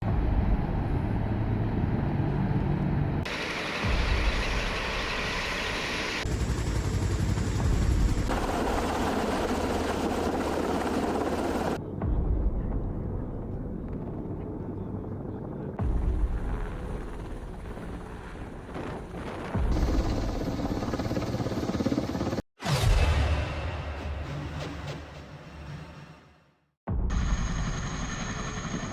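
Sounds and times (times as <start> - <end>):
helicopter rotor and engine: 0.3 - 11.8, 13.7 - 22.4, 27.1 - 28.9.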